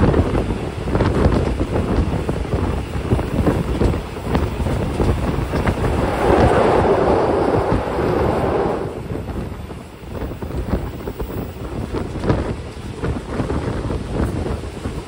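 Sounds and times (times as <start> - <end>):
train rumbling on rails: 0.0 - 15.0
wind buffeting microphone: 0.0 - 15.0
loud rushing: 5.2 - 9.5.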